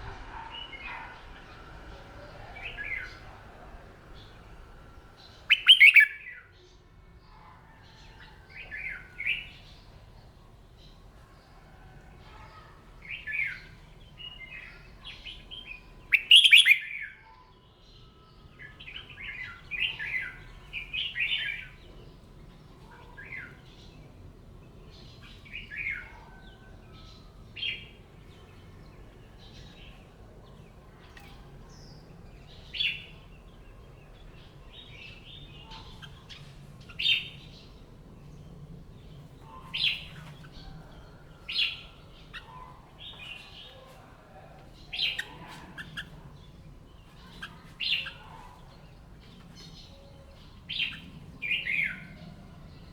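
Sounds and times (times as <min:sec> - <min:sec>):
bird singing warbled phrases: 0:05.2 - 0:06.5, 0:12.3 - 0:17.2, 0:31.0 - 0:43.9, 0:44.5 - 0:52.9.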